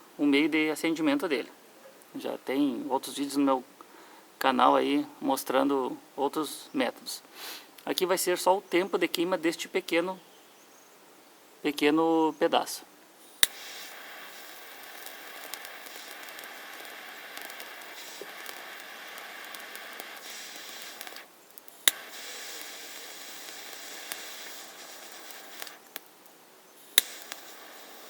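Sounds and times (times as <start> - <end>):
blowtorch flame hissing: 13.2 - 26.2, 26.8 - 28.0.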